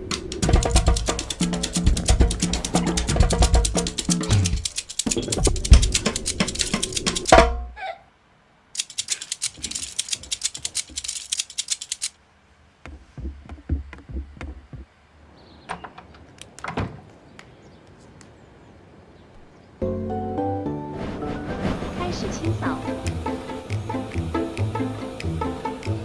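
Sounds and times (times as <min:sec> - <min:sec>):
percussive music tapping beat: 0:00.0 - 0:07.6, 0:12.8 - 0:14.9, 0:22.4 - 0:26.0.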